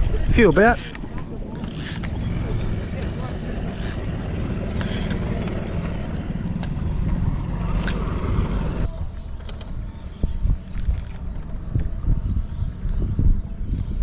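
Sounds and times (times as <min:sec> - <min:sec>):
boat motor rumbling: 0:01.2 - 0:08.9.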